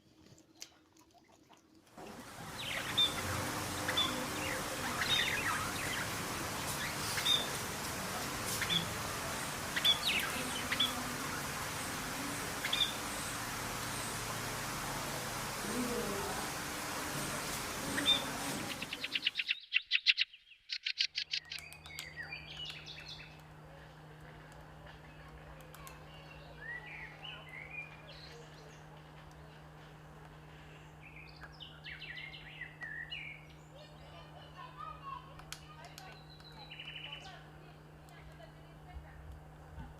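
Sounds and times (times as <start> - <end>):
steady background hiss: 2.0 - 19.6
steady low hum: 2.0 - 19.8, 20.7 - 39.9
songbirds chirping: 2.0 - 38.7.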